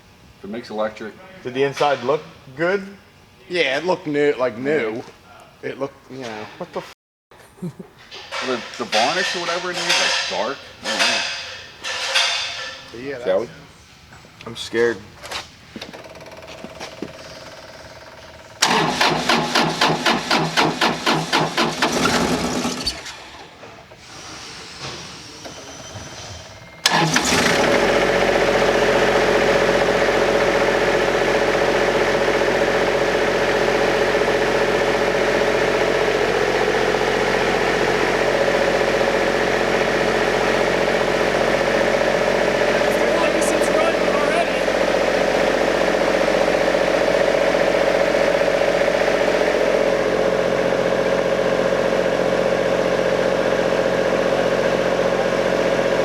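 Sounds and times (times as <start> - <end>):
car engine cranking: 18.6 - 23.4, 26.8 - 28.8
car engine idling: 40.2 - 50.2.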